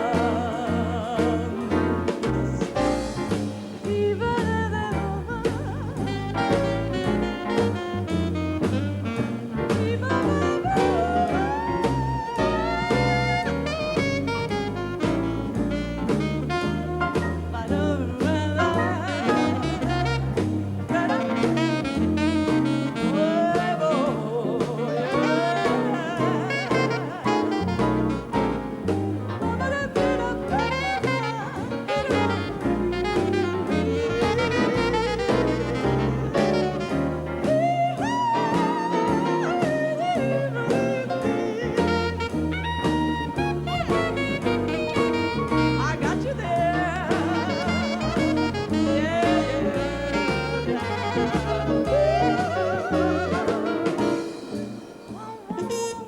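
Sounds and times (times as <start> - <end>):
drums: 0.0 - 56.0
stepping bass line: 0.0 - 56.0
saxophones playing with vibrato: 29.7 - 56.0.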